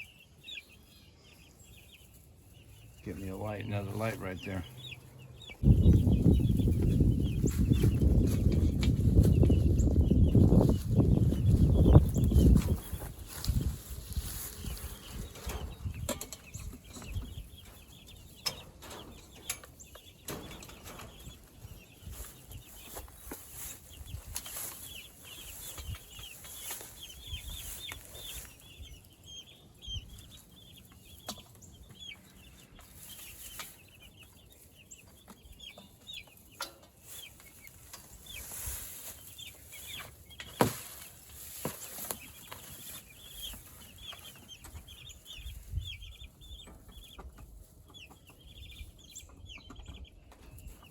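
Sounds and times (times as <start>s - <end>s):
chicks cheeping: 0.0s - 50.9s
scratching and rustling: 5.6s - 28.6s, 30.2s - 45.7s.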